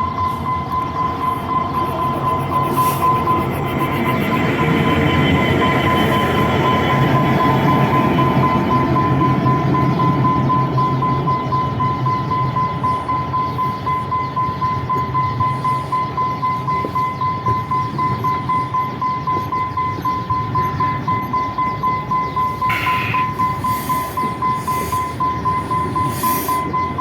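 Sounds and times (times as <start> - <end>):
high whine: 0.0 - 10.5, 21.6 - 27.0
diesel train engine hum: 0.0 - 27.0.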